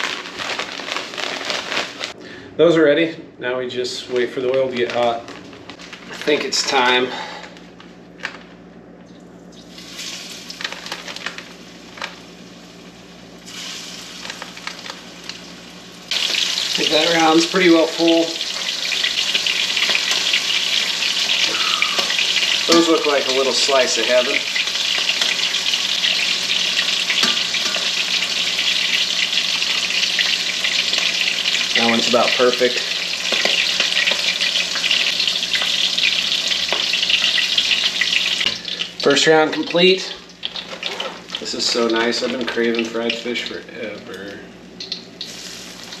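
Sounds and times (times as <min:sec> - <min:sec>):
fish sizzling in hot oil: 0:09.7 - 0:11.3, 0:12.3 - 0:41.3, 0:44.8 - 0:46.0.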